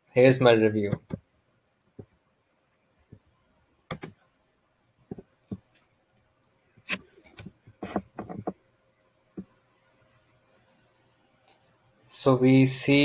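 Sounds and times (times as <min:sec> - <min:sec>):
short clicks and taps: 0:00.9 - 0:01.2, 0:03.9 - 0:04.2.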